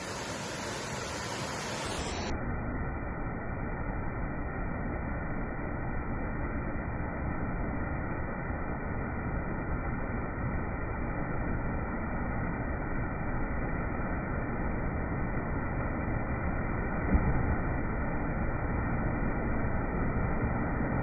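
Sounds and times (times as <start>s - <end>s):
waterfall rushing: 0.0s - 2.3s.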